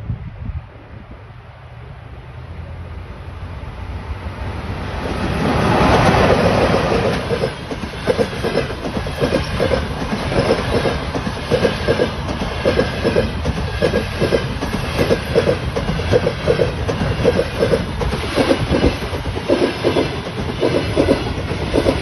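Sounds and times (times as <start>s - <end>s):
passenger train passing: 0.0s - 22.0s
train wheels clickety-clack: 5.0s - 22.0s.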